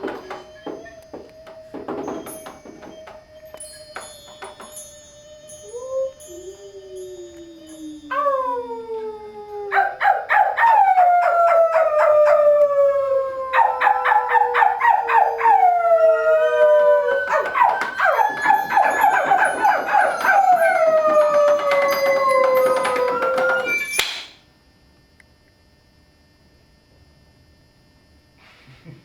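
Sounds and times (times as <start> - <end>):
rapid ringing clicks: 0.0 - 8.0, 17.1 - 24.2
howl-like gliding pitches: 0.0 - 24.0.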